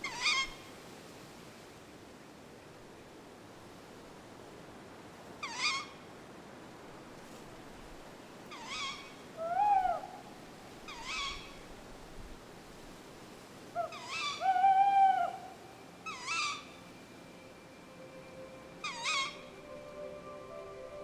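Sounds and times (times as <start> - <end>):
owl calling: 0.0 - 0.6, 5.4 - 5.9, 8.5 - 10.2, 10.9 - 11.6, 13.8 - 16.8, 18.8 - 19.8.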